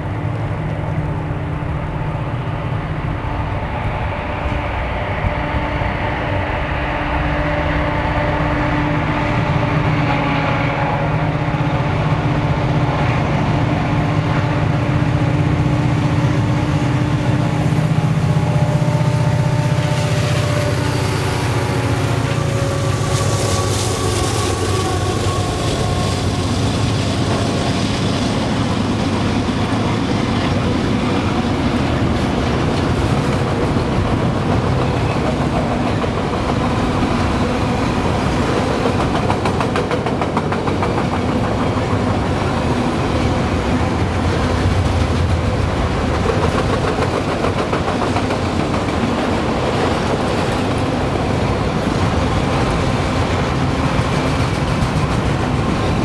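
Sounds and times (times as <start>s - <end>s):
freight cars rumbling on rails: 0.0s - 56.0s
wheels clacking over rail joints: 24.0s - 56.0s.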